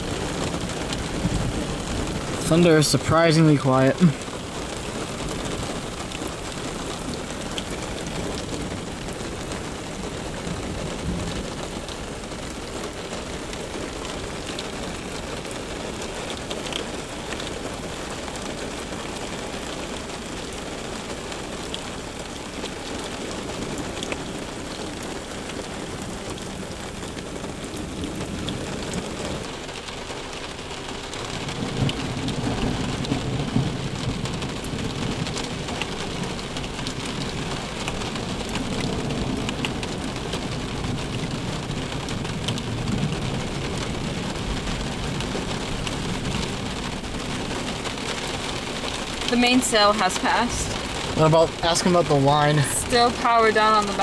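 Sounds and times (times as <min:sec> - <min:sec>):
heavy rain on pavement: 0:00.0 - 0:54.0
thunder rumbling: 0:23.4 - 0:54.0.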